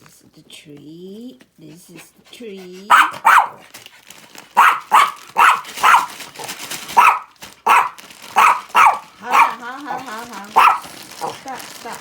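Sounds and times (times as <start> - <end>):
dog barking: 2.9 - 3.7, 4.5 - 11.4.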